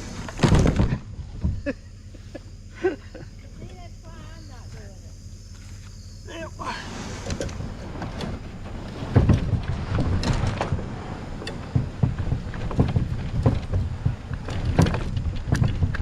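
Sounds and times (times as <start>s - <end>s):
wind rumbling on microphone: 0.0s - 1.8s, 6.6s - 16.0s
hull and paddle knocks and splashes: 7.2s - 16.0s.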